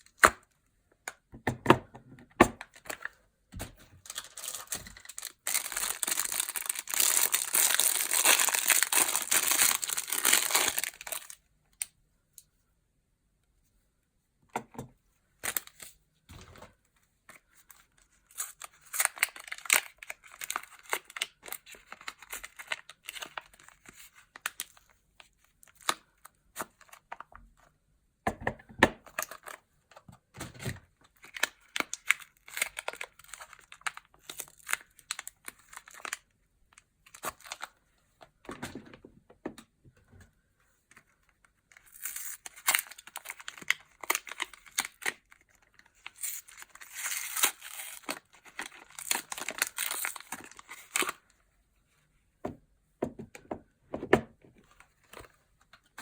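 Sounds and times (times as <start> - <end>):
wrappers tearing and crinkling: 4.0 - 11.4, 18.3 - 23.7, 31.2 - 36.2, 41.7 - 51.2.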